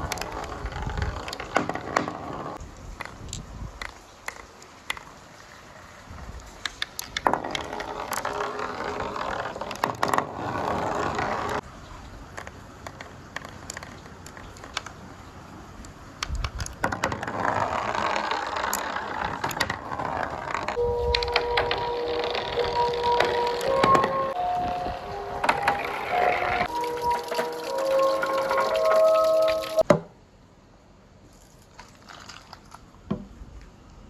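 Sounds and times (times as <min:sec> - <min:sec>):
marbles rolling on track: 0:06.6 - 0:11.6, 0:16.6 - 0:24.3.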